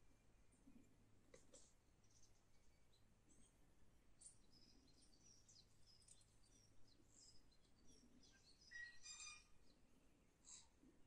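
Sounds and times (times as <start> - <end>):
birdsong chirps and whistles: 4.2 - 9.9.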